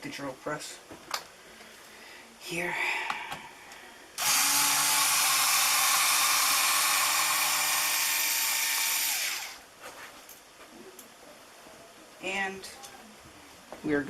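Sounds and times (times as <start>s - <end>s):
drill press whirring: 4.2s - 9.6s.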